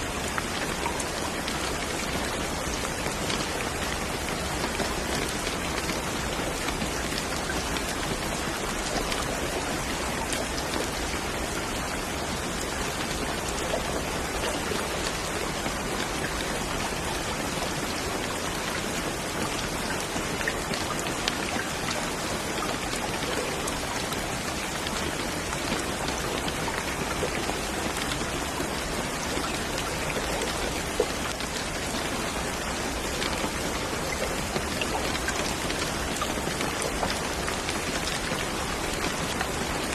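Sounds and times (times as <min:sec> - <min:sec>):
steady rain falling: 0:00.0 - 0:39.9
raindrops ticking: 0:00.1 - 0:39.9.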